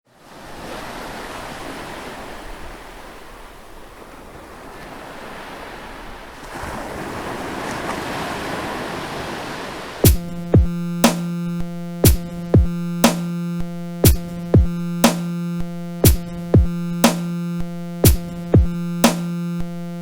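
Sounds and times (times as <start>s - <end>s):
surf-like electronic noise wash: 10.0s - 20.0s.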